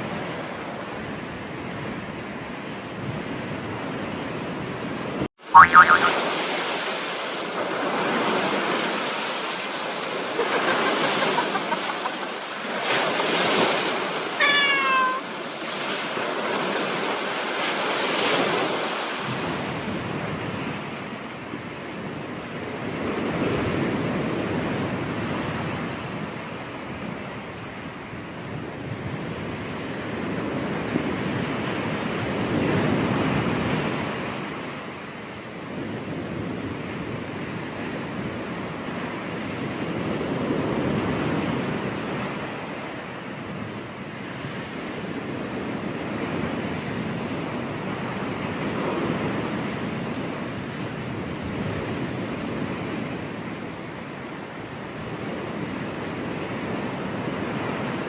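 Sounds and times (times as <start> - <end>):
surf breaking on beach: 4.9 - 21.2
high-pitched animal call: 5.6 - 6.2, 14.3 - 15.4.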